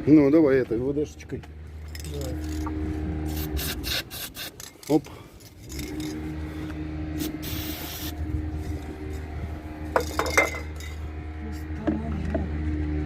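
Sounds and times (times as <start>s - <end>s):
low engine hum: 0.0s - 13.0s
metal tools clinking: 1.8s - 2.7s, 4.6s - 6.2s, 10.0s - 11.0s
aerosol can spraying: 3.3s - 4.7s, 7.2s - 8.2s.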